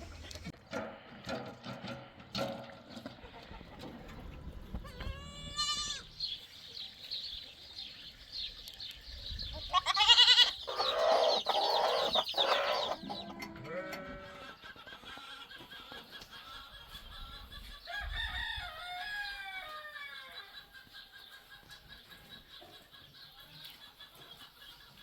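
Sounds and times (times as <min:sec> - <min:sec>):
goats bleating: 0:04.9 - 0:06.2, 0:09.7 - 0:14.5
high chirping: 0:10.4 - 0:13.3.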